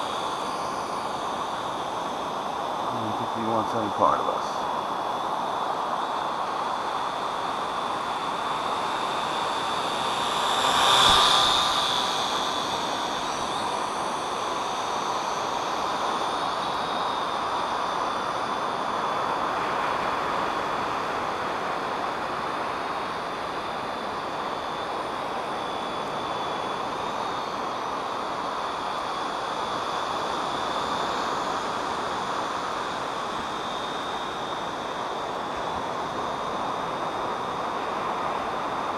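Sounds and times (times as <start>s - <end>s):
drone motors whining: 9.0s - 14.7s.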